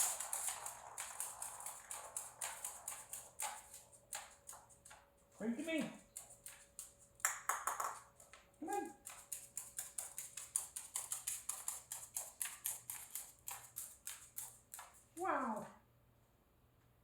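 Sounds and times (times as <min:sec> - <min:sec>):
parrot tapping on hard surface: 0:06.2 - 0:08.4.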